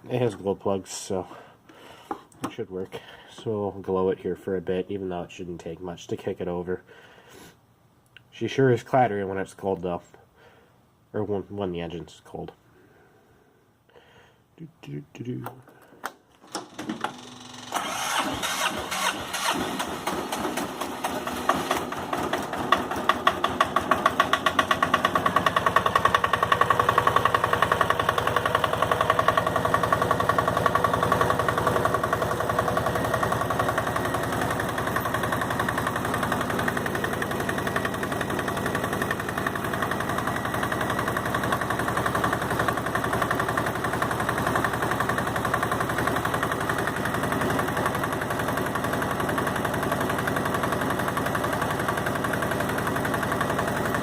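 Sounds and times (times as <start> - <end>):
diesel engine idling with clatter: 18.6 - 54.0.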